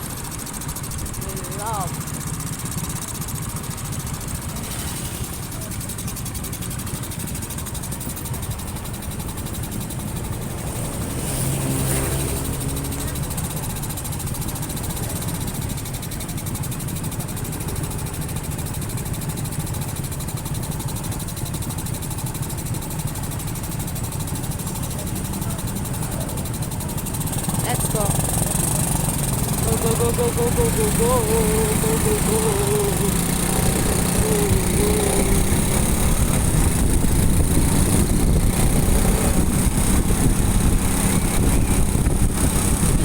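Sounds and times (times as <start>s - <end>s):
another vehicle engine: 0.0s - 43.0s
motorcycle engine idling: 0.0s - 43.0s.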